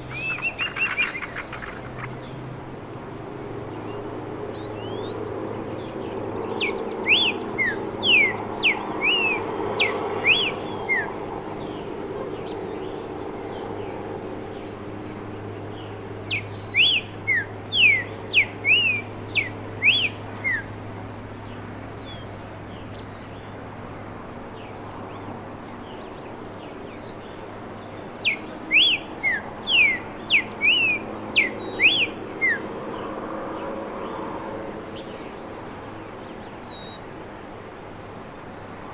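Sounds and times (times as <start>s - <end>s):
bird whistling downward notes: 0.0s - 2.3s, 17.3s - 19.0s
low background hum: 0.0s - 4.4s.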